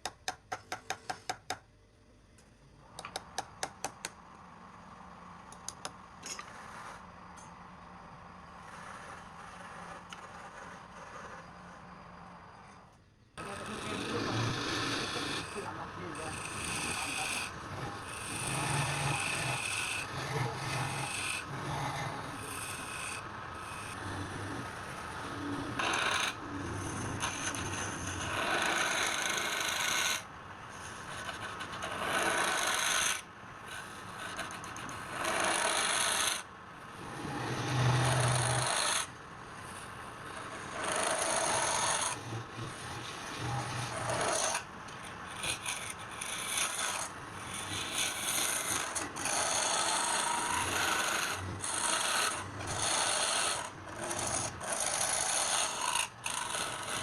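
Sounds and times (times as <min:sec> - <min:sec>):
wood being rasped: 0:13.4 - 0:36.4, 0:37.0 - 0:57.0.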